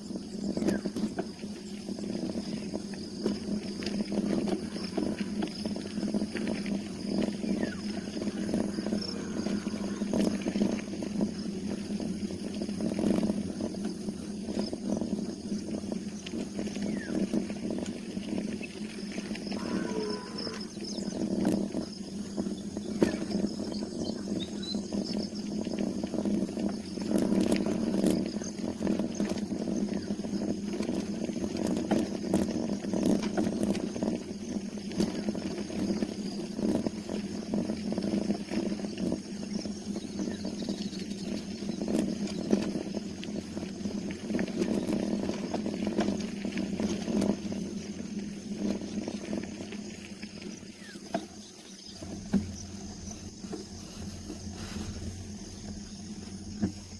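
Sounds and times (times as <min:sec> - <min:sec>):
bicycle road noise: 0:00.0 - 0:56.9
wind noise while cycling: 0:00.0 - 0:56.9.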